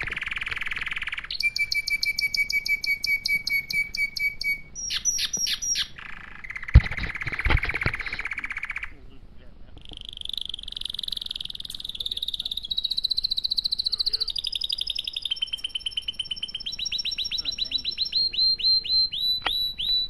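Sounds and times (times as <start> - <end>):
bird chirping: 0.0 - 20.0
bird trilling: 0.0 - 20.0.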